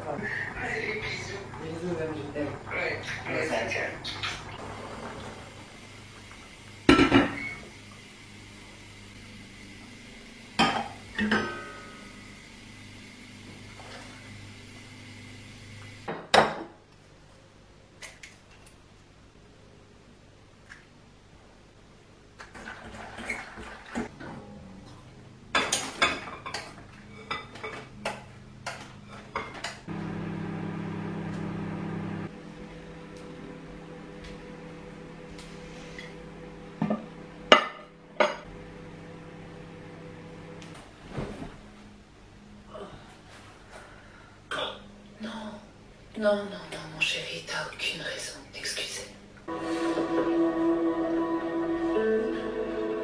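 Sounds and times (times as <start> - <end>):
dishes clattering: 25.5 - 29.9.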